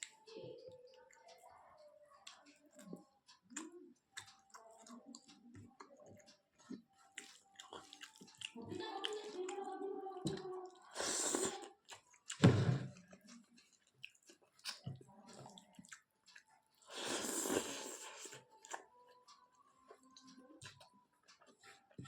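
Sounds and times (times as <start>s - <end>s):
chewing and biting food: 2.2s - 19.0s.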